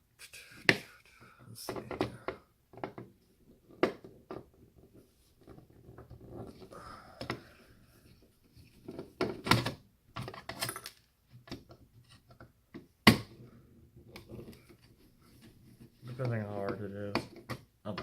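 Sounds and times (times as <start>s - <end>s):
plastic and metal parts clattering: 8.8s - 12.5s.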